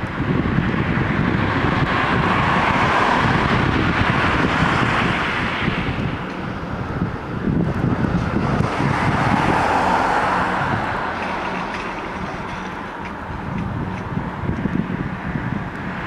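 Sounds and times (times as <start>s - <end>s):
boat engine rumbling: 0.0s - 15.7s
wind buffeting microphone: 0.0s - 16.0s.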